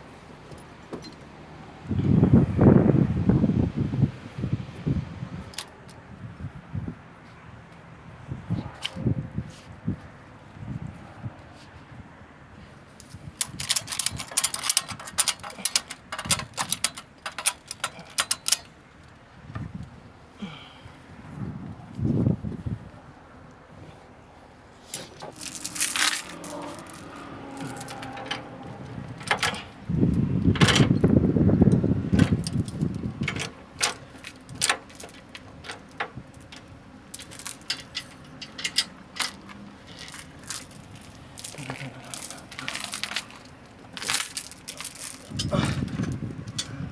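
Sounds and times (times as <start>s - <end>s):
metal hardware clinking: 13.0s - 19.7s, 24.8s - 46.9s
metallic clicks and rattles: 13.0s - 19.7s, 24.8s - 46.9s.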